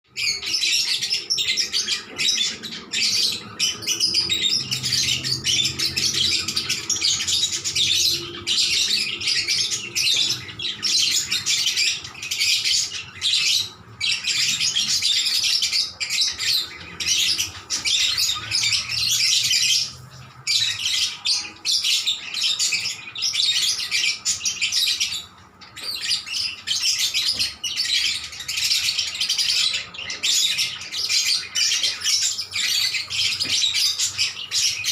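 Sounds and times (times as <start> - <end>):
lovebirds chattering and chirping: 0.1 - 34.9.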